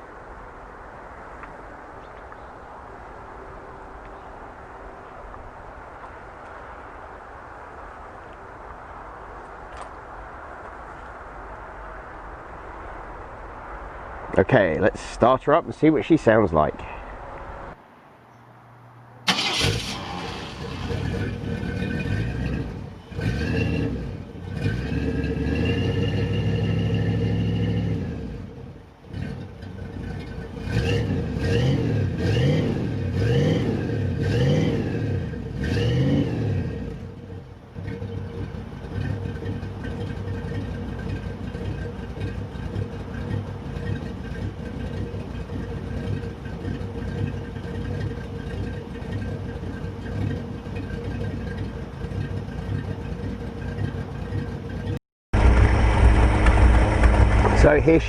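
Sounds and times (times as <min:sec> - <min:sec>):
truck engine revving and idling: 0:19.3 - 0:58.0.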